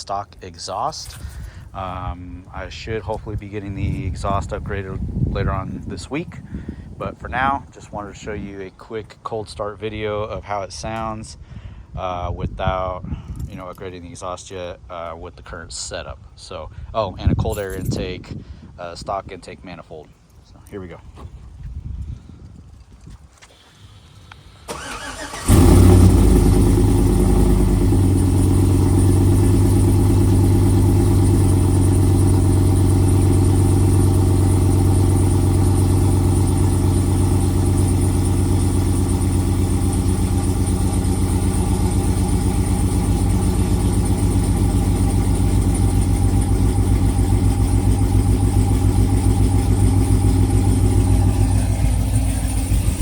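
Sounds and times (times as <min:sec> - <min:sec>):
engine starting and idling: 0:24.0 - 0:53.0
starter cranking: 0:24.7 - 0:29.4.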